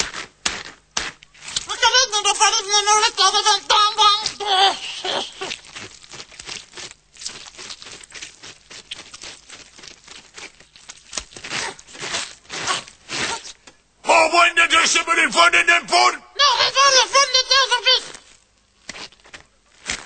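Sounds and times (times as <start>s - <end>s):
short scratchy noises: 11.3s - 16.1s.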